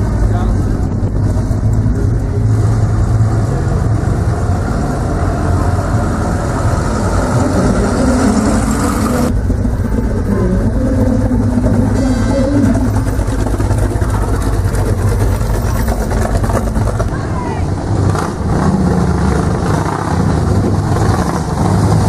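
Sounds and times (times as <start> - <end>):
car engine idling: 7.2 - 18.5.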